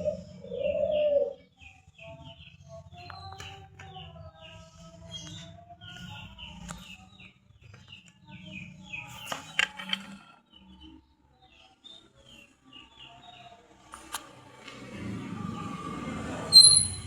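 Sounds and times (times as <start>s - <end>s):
bird chirping: 16.5s - 17.0s.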